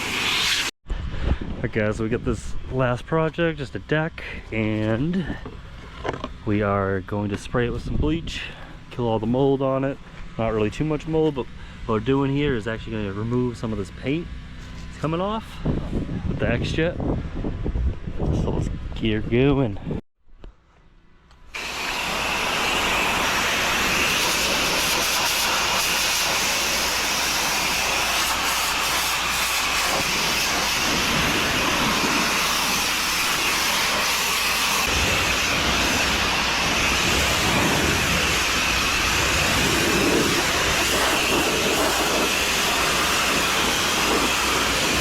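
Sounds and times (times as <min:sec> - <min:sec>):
pressure washer spraying water: 0:00.0 - 0:00.7, 0:21.6 - 0:45.0.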